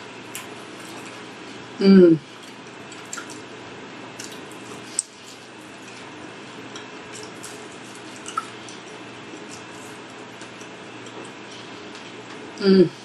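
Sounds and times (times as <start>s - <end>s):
steady low hum: 0.0s - 13.0s
wet chewing and lip-smacking: 2.3s - 12.5s.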